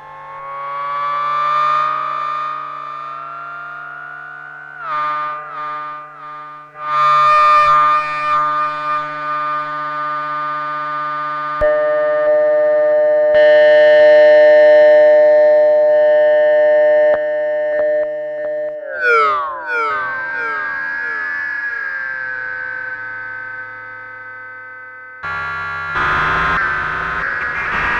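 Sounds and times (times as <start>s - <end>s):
synthesizer chords: 25.2s - 27.9s
synthesizer notes gliding in pitch: 25.2s - 27.9s.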